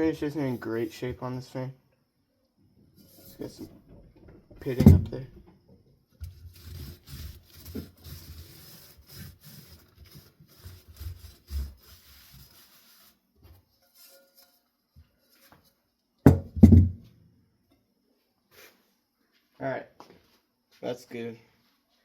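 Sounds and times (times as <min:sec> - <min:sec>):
paper towel rubbing on metal: 0:03.0 - 0:03.7, 0:06.2 - 0:14.6
loud knocks: 0:16.3 - 0:17.0.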